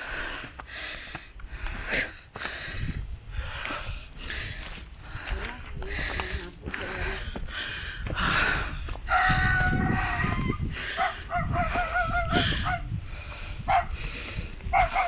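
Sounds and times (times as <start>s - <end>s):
drawn-out animal call: 9.1s - 12.9s.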